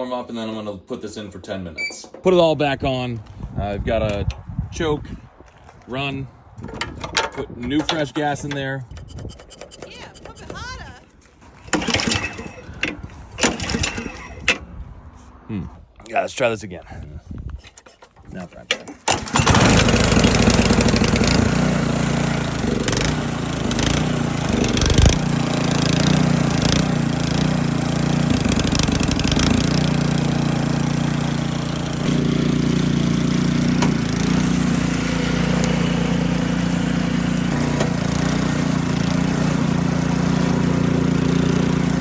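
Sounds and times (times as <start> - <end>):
snowblower engine running: 9.8 - 14.5, 19.1 - 42.0.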